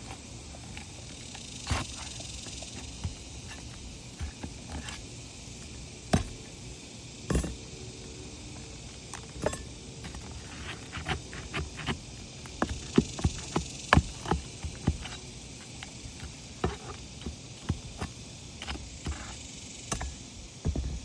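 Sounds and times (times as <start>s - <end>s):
hand tool tapping on shingles: 9.4s - 20.9s.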